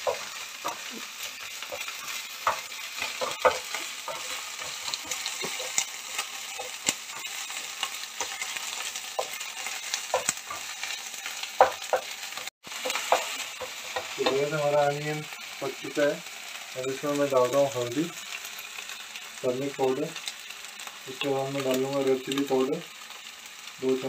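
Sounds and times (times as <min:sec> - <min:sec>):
wooden spatula scraping pan: 0:00.0 - 0:11.0
onions sizzling in hot oil: 0:00.0 - 0:24.0.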